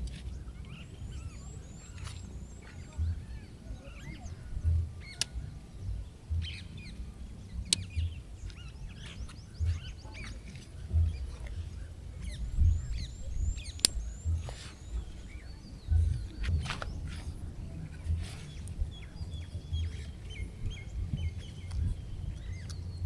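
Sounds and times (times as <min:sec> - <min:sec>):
dull low thuds: 0:00.0 - 0:23.0
small birds chirping: 0:00.0 - 0:23.0
sharp clicks: 0:07.6 - 0:11.6, 0:13.6 - 0:17.3.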